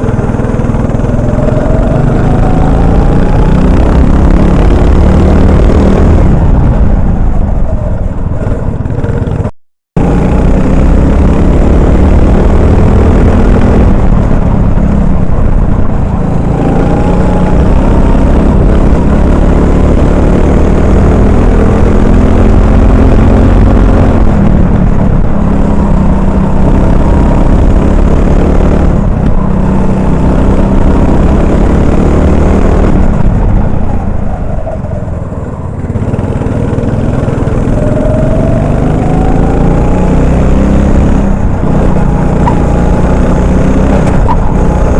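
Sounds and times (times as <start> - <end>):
kart engine revving: 0.0 - 44.9.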